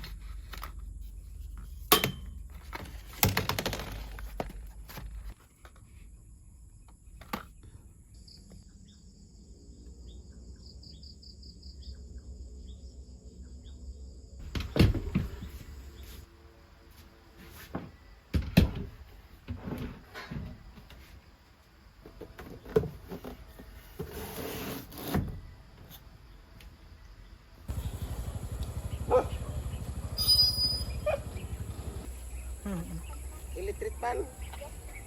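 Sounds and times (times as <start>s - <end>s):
objects knocking and thumping: 1.7s - 5.4s
faint high chirps: 28.8s - 31.6s.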